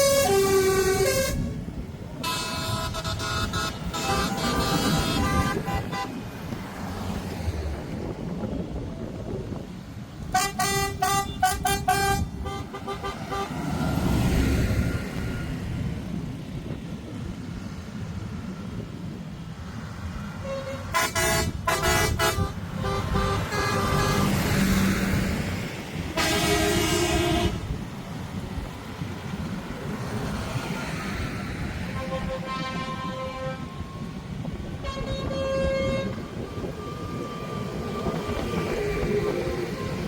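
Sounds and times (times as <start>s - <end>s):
vehicle horns: 0.0s - 1.6s, 2.2s - 6.5s, 10.2s - 13.9s, 20.4s - 25.3s, 26.0s - 27.8s, 31.8s - 34.2s, 34.8s - 40.0s.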